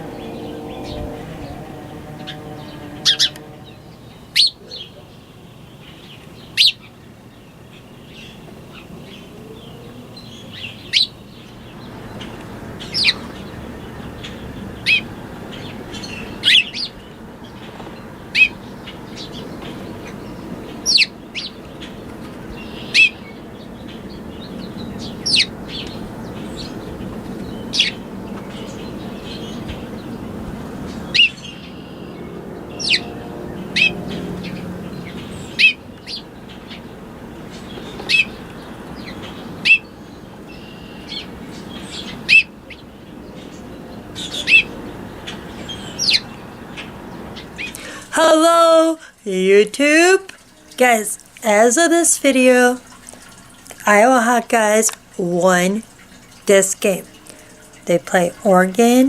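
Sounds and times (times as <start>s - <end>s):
low background rumble: 0.0s - 37.8s
birds chirping: 0.0s - 59.0s.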